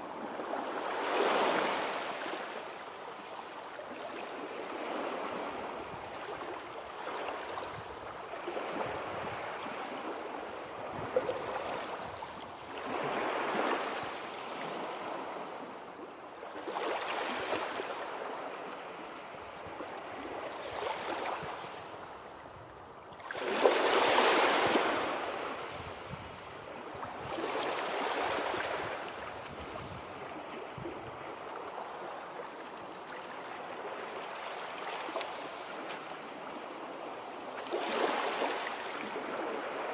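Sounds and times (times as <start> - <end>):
sea surf waves: 0.0 - 3.3, 23.2 - 39.9.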